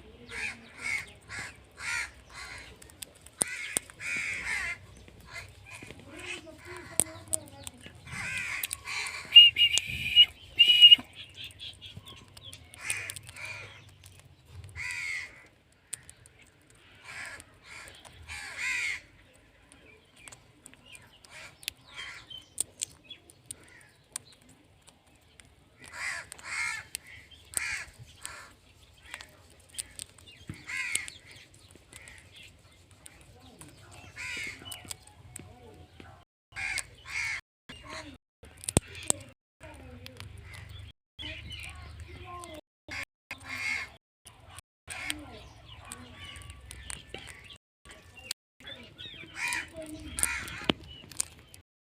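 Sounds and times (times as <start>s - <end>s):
parrot squawking: 8.1s - 11.0s.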